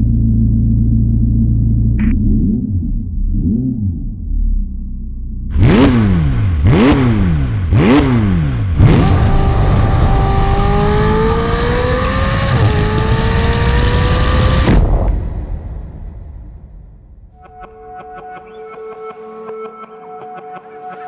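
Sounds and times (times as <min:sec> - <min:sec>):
sports car engine revving: 0:05.5 - 0:14.7.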